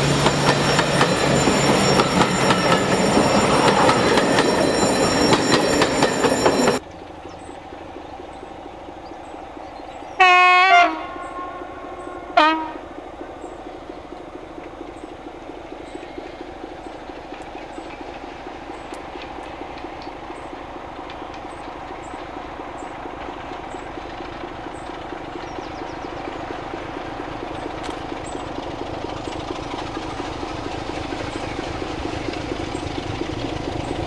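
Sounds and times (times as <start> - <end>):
diesel locomotive running: 0.0 - 34.0
locomotive horn blasts: 10.2 - 12.9.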